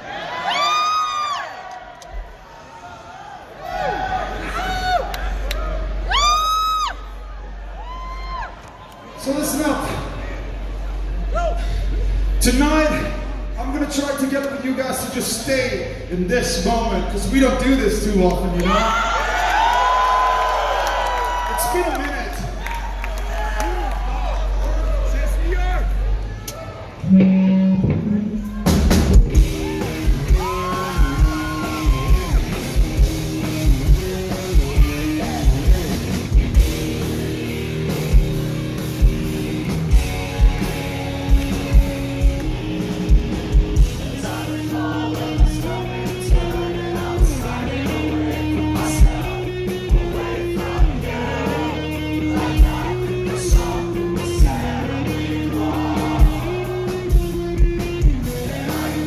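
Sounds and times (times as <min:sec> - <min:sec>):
electric guitars: 0:27.0 - 0:59.0
drum kit beat: 0:28.4 - 0:59.0
person singing lead vocal: 0:43.9 - 0:57.1.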